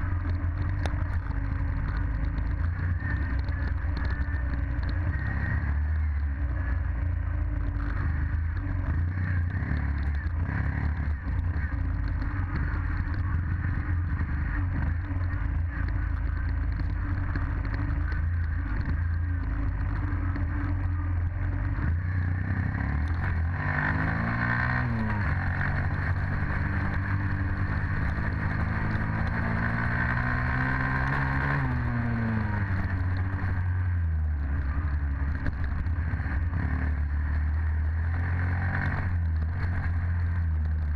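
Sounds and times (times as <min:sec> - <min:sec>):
dirt bike engine revving: 0:21.6 - 0:33.7.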